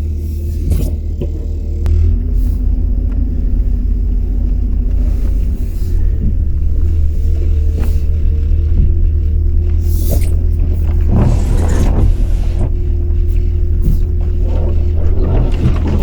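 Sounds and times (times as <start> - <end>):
truck engine and road rumble: 0.0 - 16.0
rattling and knocking: 3.0 - 16.0.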